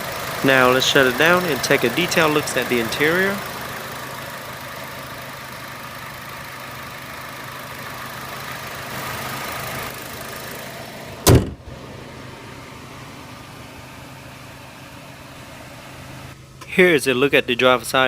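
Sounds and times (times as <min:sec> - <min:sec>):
car engine idling: 0:00.0 - 0:18.0
loud slam: 0:11.3 - 0:11.7.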